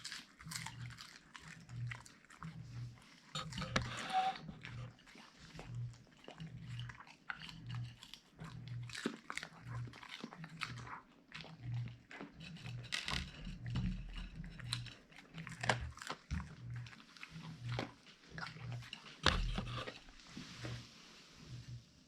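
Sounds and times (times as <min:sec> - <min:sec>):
dog chewing fish crunchily: 0:00.0 - 0:20.7.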